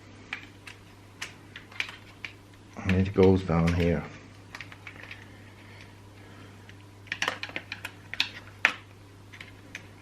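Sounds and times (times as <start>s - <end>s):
steady low hum: 0.0s - 10.0s
small parts clicking and tapping: 0.3s - 5.9s, 6.6s - 10.0s.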